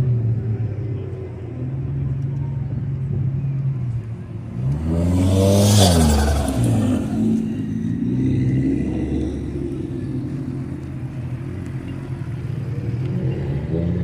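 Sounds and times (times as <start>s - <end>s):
engines running steadily: 0.0s - 14.0s
car engine revving past: 4.5s - 10.8s.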